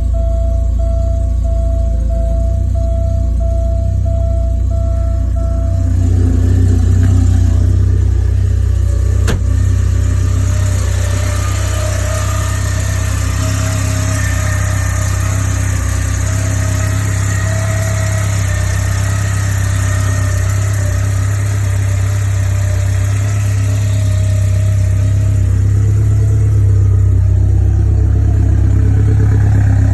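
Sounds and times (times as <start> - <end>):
repeating electronic beep: 0.0 - 6.5
car engine idling: 0.0 - 29.9.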